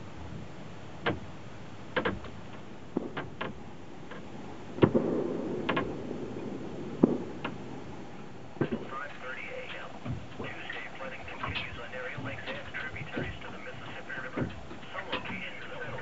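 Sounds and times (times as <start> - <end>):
sharp clicks and knocks: 1.9 - 5.0, 5.7 - 5.9.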